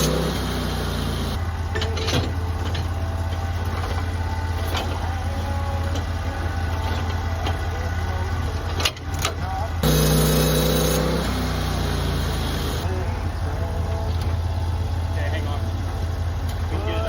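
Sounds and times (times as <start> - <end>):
sawmill engine humming: 0.0 - 17.0.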